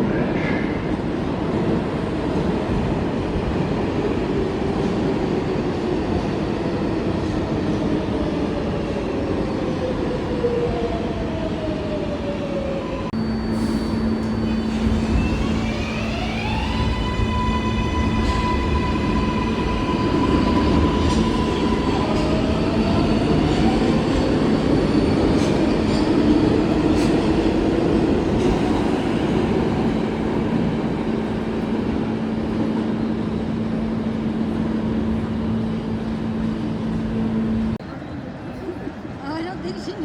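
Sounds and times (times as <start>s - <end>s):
train rumble and hum: 0.0s - 40.0s
subway train electric motor whine: 13.2s - 27.0s.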